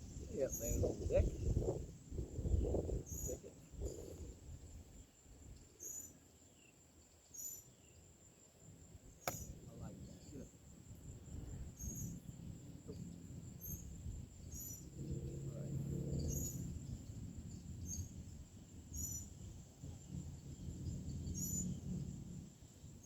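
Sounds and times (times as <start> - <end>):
insects trilling: 0.0 - 23.0
short repeated insect chirp: 0.0 - 23.0
faint hum: 7.9 - 23.0.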